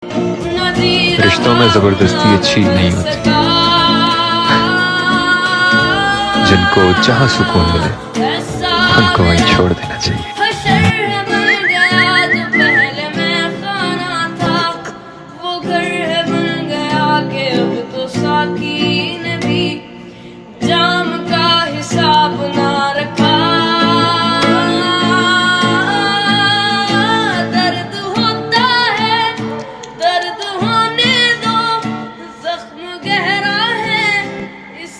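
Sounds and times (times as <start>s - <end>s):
person singing: 0.0s - 19.6s
plucked guitar: 0.0s - 34.9s.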